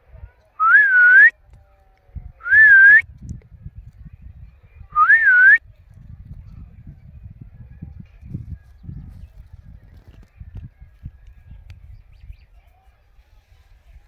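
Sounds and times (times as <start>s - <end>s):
whistled rising phrases: 0.6s - 1.3s, 2.4s - 3.0s, 5.0s - 5.6s.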